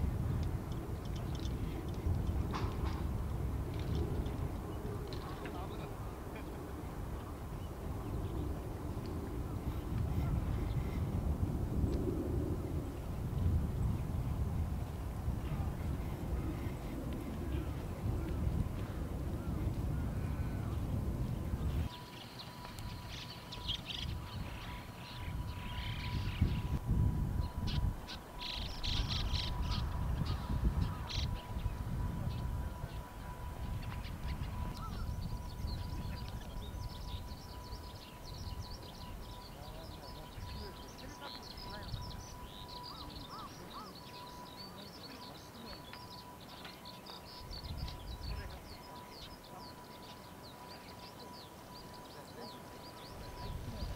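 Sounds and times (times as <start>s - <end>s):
birds chirping and trilling: 0.0s - 3.1s, 18.5s - 53.9s
wind rumble on microphone: 0.0s - 44.5s, 47.2s - 49.4s, 51.3s - 53.9s
skylark singing: 21.9s - 26.8s, 27.4s - 53.9s.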